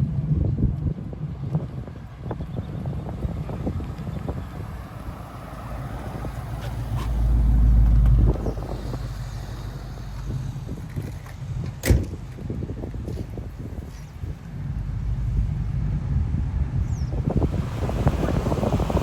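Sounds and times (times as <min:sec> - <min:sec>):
car engine rumbling: 0:00.0 - 0:19.0.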